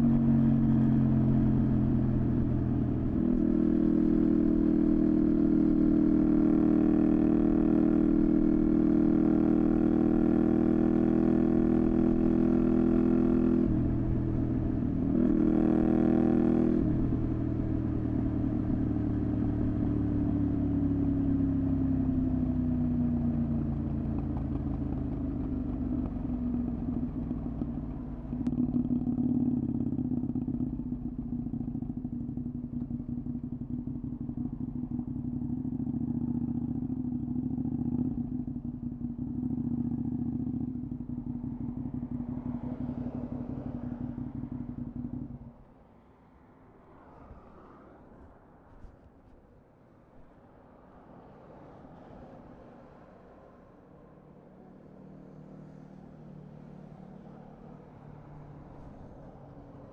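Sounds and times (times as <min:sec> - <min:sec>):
motorcycle engine revving: 0:00.0 - 0:45.6.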